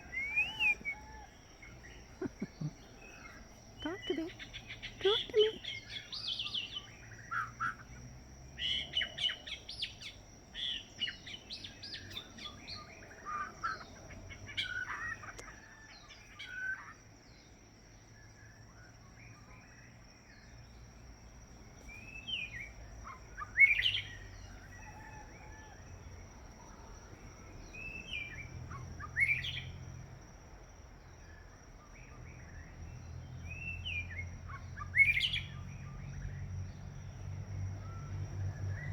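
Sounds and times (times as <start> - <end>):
bird singing whistled phrases: 0.0 - 1.3.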